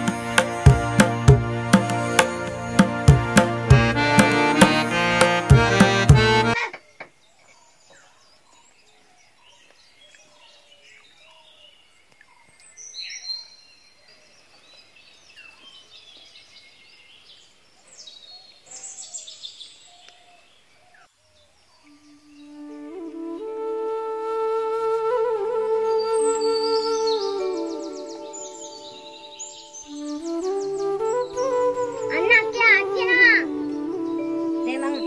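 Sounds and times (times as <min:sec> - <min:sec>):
birds chirping and calling: 0:26.1 - 0:35.0.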